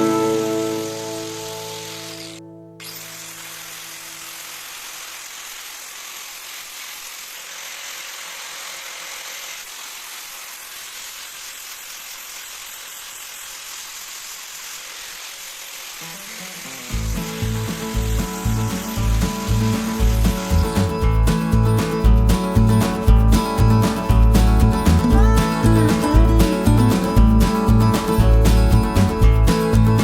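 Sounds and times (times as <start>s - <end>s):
loud music: 0.0s - 1.9s, 17.0s - 30.0s
steady hissing noise: 0.0s - 6.9s, 13.6s - 26.1s.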